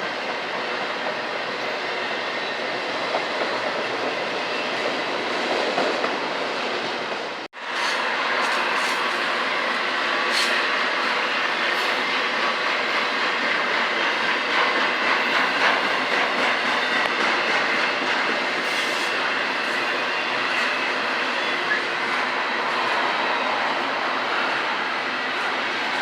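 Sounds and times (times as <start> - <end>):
rail clacks: 0.0 - 26.0
train wheels rumbling on track: 0.0 - 26.0.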